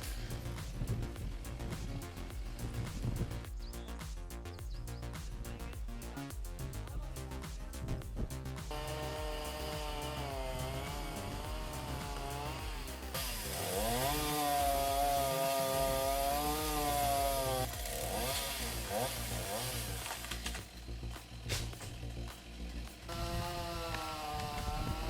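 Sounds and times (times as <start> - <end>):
wood-cutting machine engine: 8.7 - 25.0.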